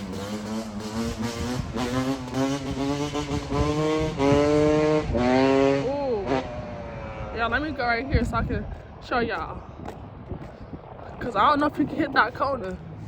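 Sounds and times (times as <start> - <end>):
dirt bike engine revving: 0.0 - 8.0.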